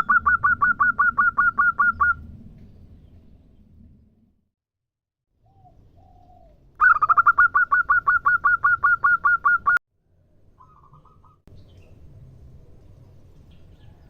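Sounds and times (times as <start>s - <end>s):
dove calling sharp repeated notes: 0.0s - 2.2s, 6.8s - 9.8s.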